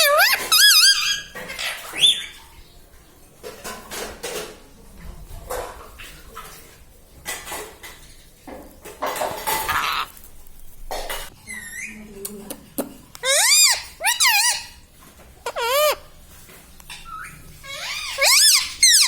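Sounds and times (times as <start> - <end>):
parrot whistled call: 13.2 - 14.7.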